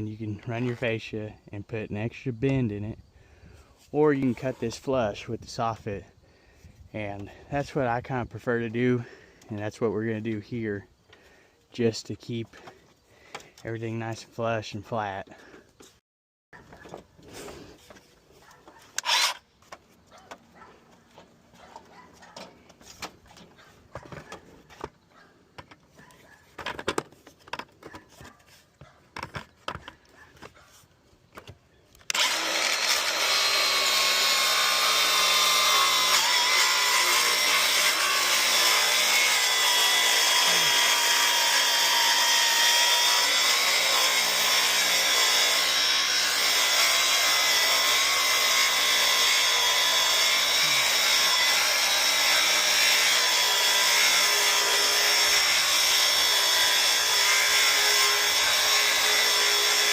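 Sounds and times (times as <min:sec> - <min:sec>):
electric power saw cutting board: 0:18.9 - 0:19.5, 0:32.0 - 0:59.9.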